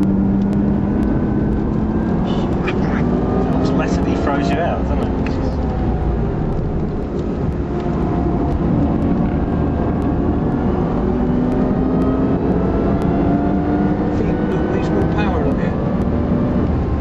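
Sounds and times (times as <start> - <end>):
car engine accelerating: 0.0 - 17.0
road and wind rumble: 0.0 - 17.0.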